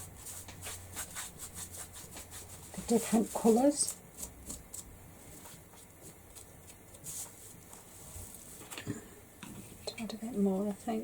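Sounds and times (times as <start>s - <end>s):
paint rubbing on board: 0.0s - 4.8s.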